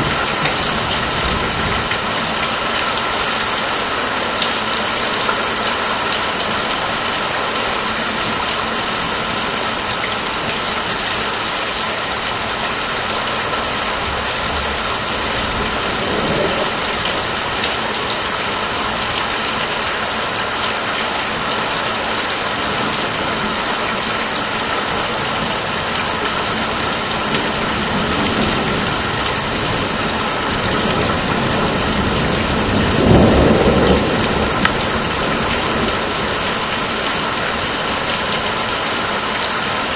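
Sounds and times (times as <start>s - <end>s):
rain hissing: 0.0s - 39.9s
thunder rumbling: 13.8s - 17.9s, 27.3s - 36.5s.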